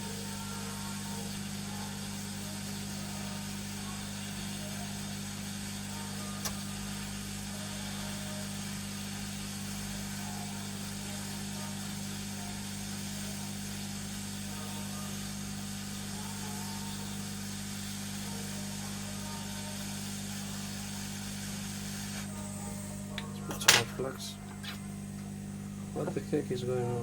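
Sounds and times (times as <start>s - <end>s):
sharp click: 6.4s - 6.6s.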